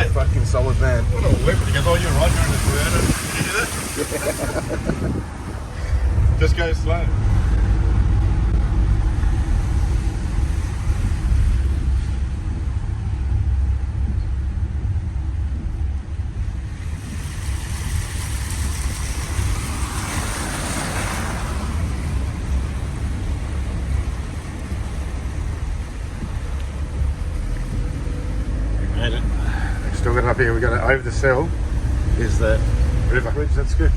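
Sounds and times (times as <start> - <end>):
water rushing hiss: 0.0 - 6.2, 16.7 - 28.4
vehicle engine and road rumble: 0.0 - 33.9.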